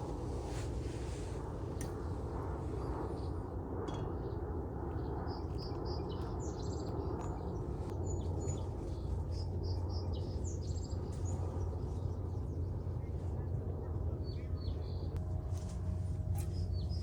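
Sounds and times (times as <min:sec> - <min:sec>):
small birds chirping: 0:16.4 - 0:17.0.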